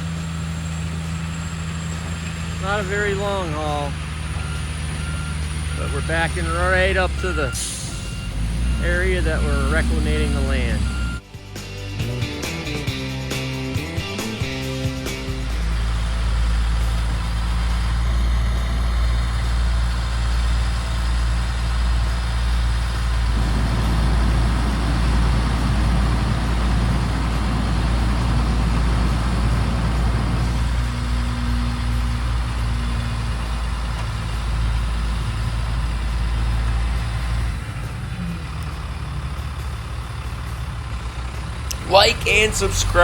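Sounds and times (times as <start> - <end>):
truck diesel engine running: 0.0 - 43.0.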